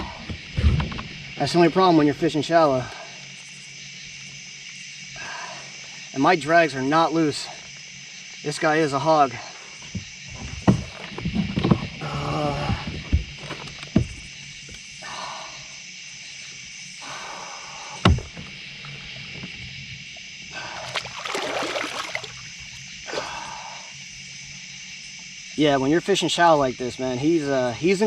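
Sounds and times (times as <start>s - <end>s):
night insects chirring: 0.0s - 28.0s
knocks against kayak hull: 9.9s - 12.0s, 12.7s - 14.2s, 18.0s - 18.6s
water splashing: 20.6s - 23.3s.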